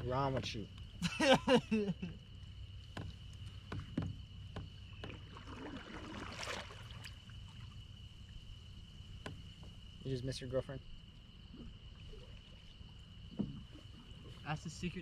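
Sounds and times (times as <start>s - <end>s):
gear knocking on kayak hull: 2.9s - 5.2s.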